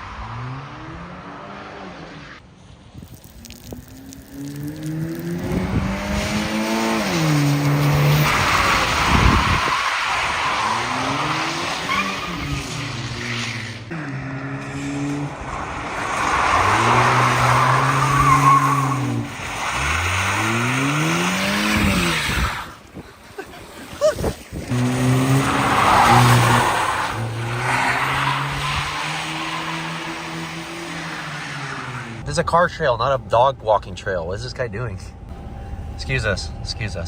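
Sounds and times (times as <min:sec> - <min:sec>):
car engine revving: 0:04.2 - 0:22.8, 0:24.7 - 0:32.3
tyres squealing: 0:15.0 - 0:22.8.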